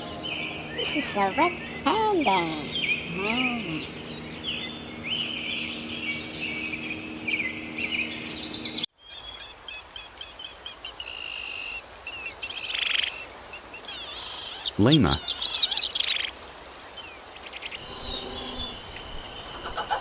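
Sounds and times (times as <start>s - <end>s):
steady low hum: 0.0s - 8.9s
birds chirping: 0.0s - 20.0s
high insect-like trill: 17.8s - 19.7s.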